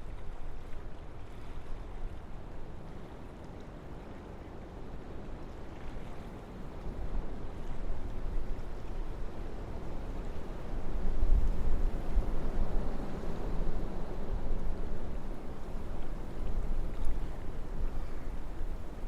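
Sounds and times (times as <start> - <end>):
wind gusting through forest: 8.0 - 19.0.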